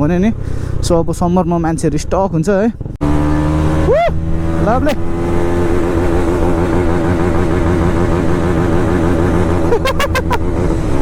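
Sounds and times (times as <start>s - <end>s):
motorcycle engine running: 2.7s - 11.0s.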